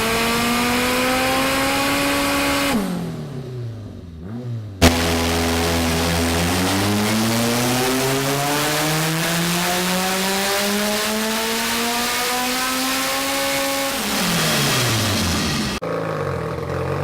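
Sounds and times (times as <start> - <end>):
car engine revving at full throttle: 0.0 - 15.8.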